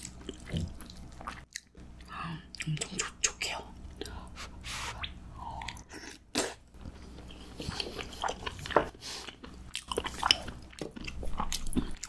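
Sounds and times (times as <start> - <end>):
person chewing soft food: 0.0 - 2.7, 3.9 - 12.0.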